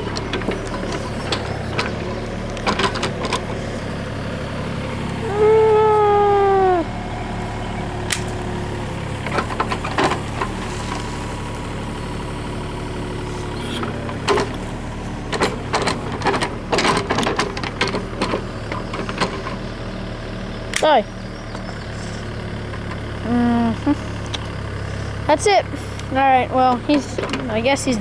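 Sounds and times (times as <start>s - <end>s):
machine clanks and knocks: 0.0s - 3.8s, 9.2s - 10.6s, 13.8s - 19.7s, 26.8s - 27.8s
excavator diesel engine running: 0.0s - 28.0s.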